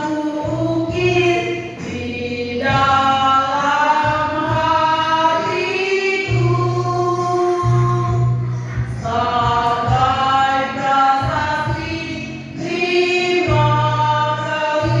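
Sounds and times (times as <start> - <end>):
backing track: 0.0 - 15.0
woman singing karaoke: 0.0 - 15.0
bass line: 6.3 - 15.0.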